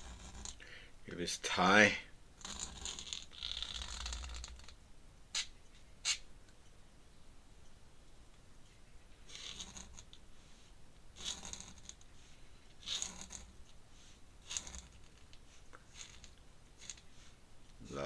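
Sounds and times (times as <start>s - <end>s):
pen scratching on paper: 0.0s - 0.6s, 2.4s - 4.6s, 9.3s - 10.1s, 11.2s - 12.0s, 12.8s - 13.6s, 14.4s - 17.3s.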